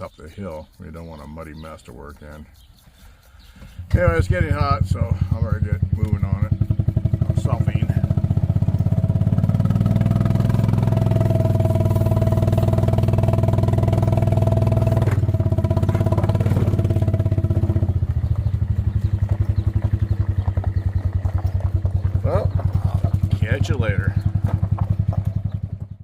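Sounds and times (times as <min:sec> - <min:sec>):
small engine running: 0:03.4 - 0:26.0.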